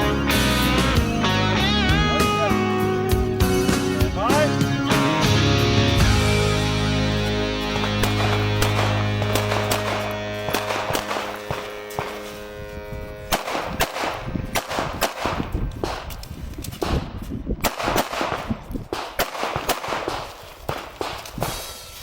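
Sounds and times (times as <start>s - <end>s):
pistol shots: 7.7s - 12.2s, 13.3s - 16.2s, 16.8s - 21.6s.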